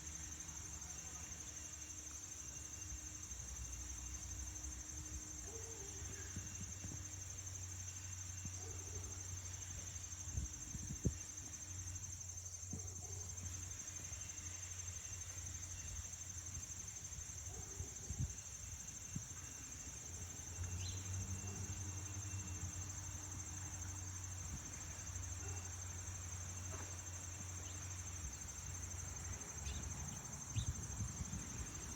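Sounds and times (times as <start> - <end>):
insects chirring: 0.0 - 31.9.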